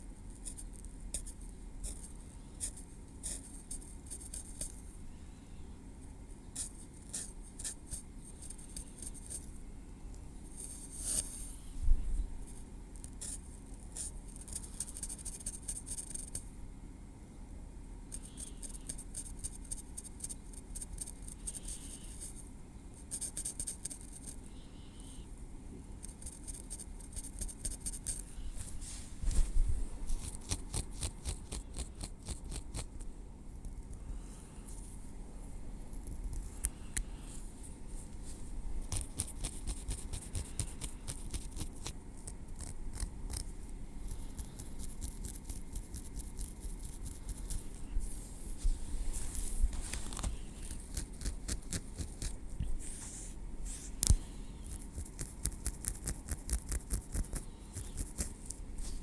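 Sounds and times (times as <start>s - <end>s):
tweezers clicking and scraping hair: 30.2s - 33.0s, 38.9s - 43.6s, 50.1s - 52.4s.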